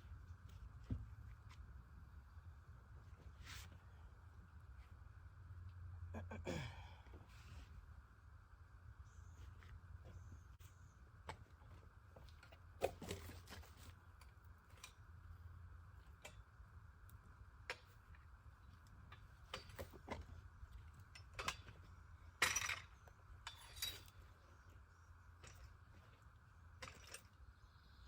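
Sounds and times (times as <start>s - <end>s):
metallic clinks and knocks: 22.4s - 24.2s.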